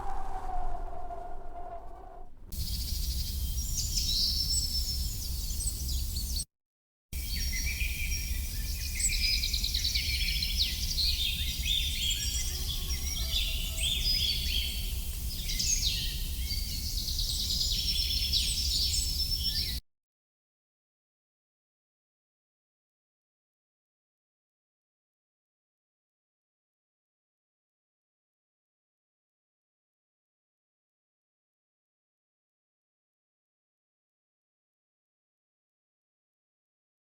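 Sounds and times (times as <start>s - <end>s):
steady low rumble: 0.0s - 2.5s
birds chirping and trilling: 0.0s - 3.4s.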